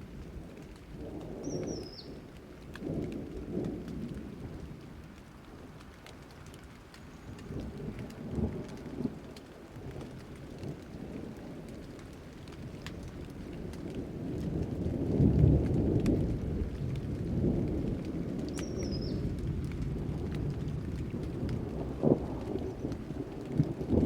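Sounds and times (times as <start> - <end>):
steady rain: 0.0 - 24.0
thunder rumbling: 7.3 - 24.0.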